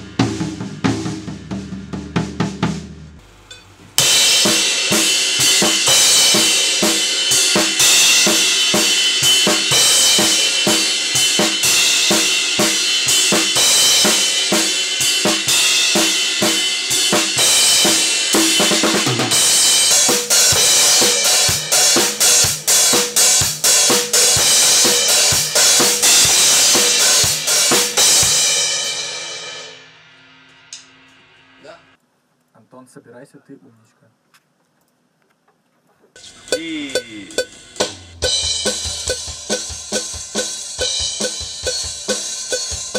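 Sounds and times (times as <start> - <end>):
kick and snare drum beat: 4.0 - 28.4, 36.2 - 42.9
cymbals ringing: 36.2 - 42.9.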